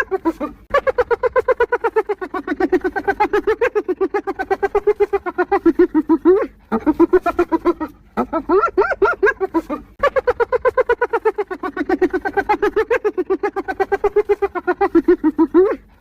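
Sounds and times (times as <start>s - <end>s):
hyena giggling: 0.0s - 16.0s.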